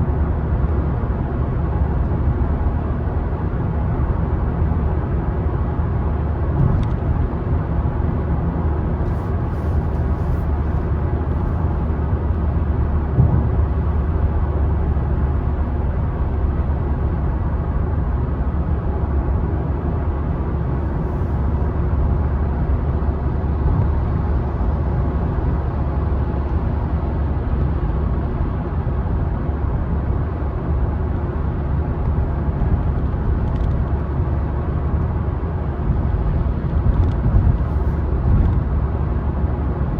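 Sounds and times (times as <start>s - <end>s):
car engine and tyre rumble: 0.0s - 39.9s
car bump: 13.1s - 13.8s.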